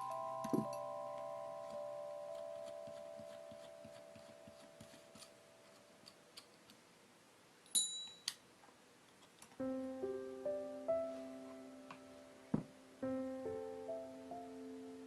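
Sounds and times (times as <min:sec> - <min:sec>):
piano music: 0:00.0 - 0:05.6, 0:09.6 - 0:15.0.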